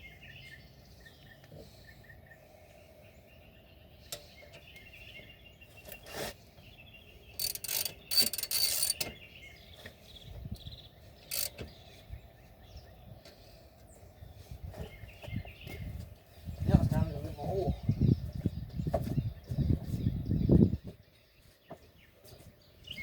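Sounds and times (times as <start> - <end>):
socket ratchet clicking: 7.4 - 9.1, 11.3 - 11.6.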